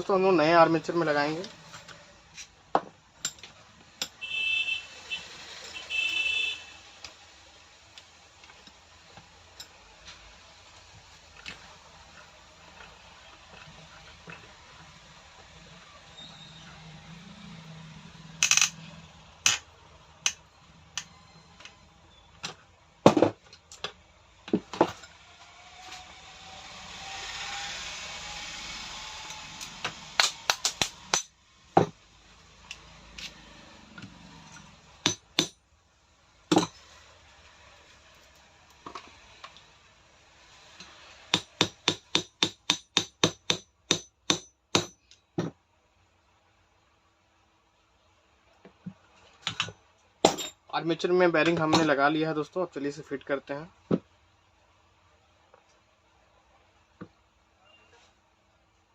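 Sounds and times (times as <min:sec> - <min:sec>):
hammer tapping metal: 0:30.2 - 0:31.9, 0:35.0 - 0:35.6, 0:41.3 - 0:45.5.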